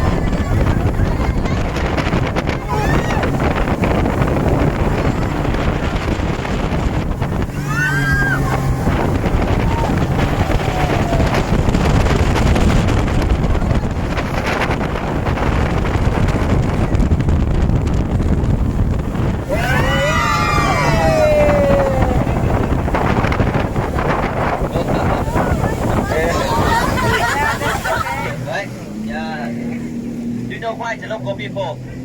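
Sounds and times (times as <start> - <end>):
speedboat engine and hull noise: 0.0 - 32.0
wind buffeting on microphone: 0.0 - 32.0.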